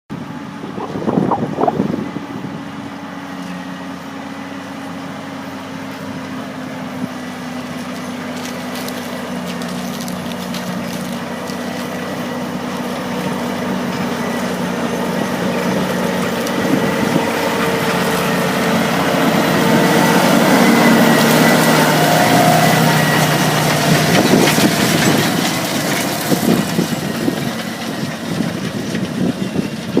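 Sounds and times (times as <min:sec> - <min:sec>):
tractor diesel engine running: 0:00.1 - 0:30.0
crackles and knocks: 0:07.8 - 0:14.4.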